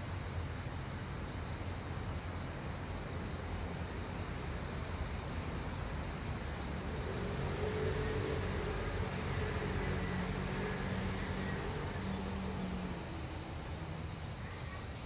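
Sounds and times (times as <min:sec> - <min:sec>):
constant high hiss: 0:00.0 - 0:15.0
faint engine hum: 0:03.1 - 0:15.0.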